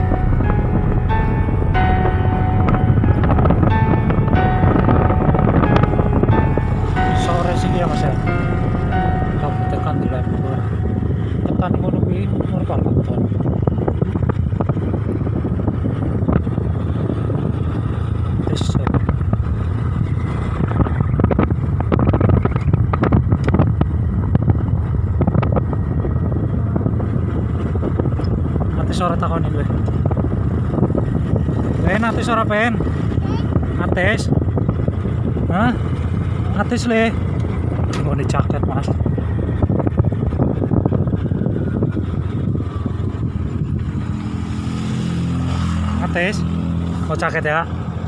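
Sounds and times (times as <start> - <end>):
crackles and knocks: 0.0 - 11.5
rushing roar: 0.0 - 13.7
vehicle engine rumble: 0.0 - 48.0
wind buffeting microphone: 0.0 - 48.0.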